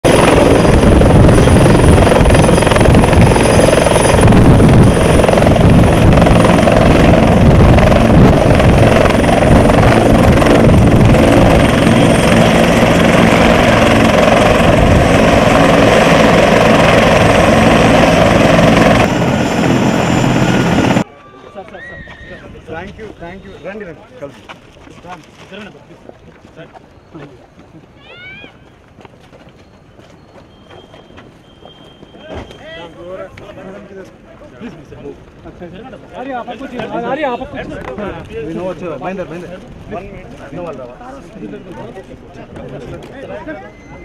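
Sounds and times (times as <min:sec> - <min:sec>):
helicopter rotor and turbine drone: 0:00.0 - 0:21.1.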